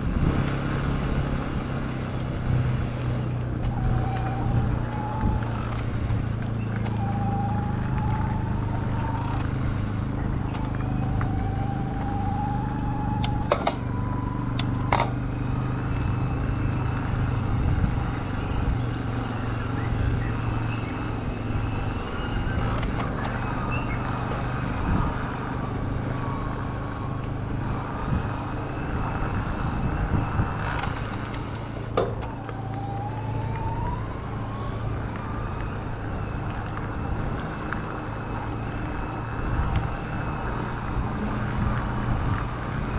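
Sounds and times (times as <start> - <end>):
rolling tyre noise: 0.0 - 42.9
wind: 0.0 - 42.9
sharp clicks or knocks: 13.2 - 13.9, 31.9 - 32.4.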